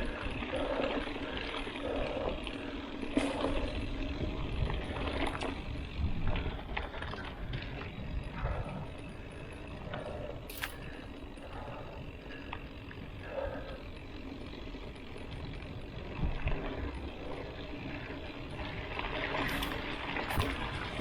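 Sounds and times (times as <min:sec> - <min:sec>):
bike frame and chain rattling: 0:00.0 - 0:21.0
wind rumble on microphone: 0:03.2 - 0:13.6, 0:14.9 - 0:21.0.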